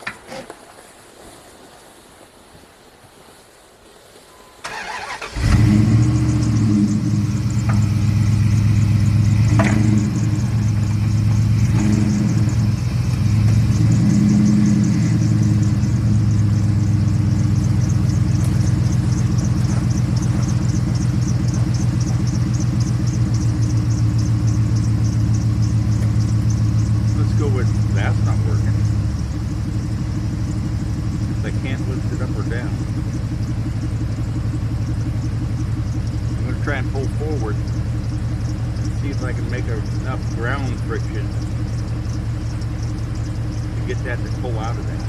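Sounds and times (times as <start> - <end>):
truck engine running: 4.4 - 45.0
engine starter cranking: 4.6 - 45.0.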